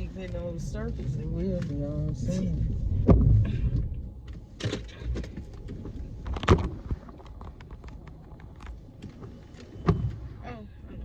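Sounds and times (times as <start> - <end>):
faint low rumble: 0.0 - 11.0
clicks and knocks inside car: 2.9 - 10.3.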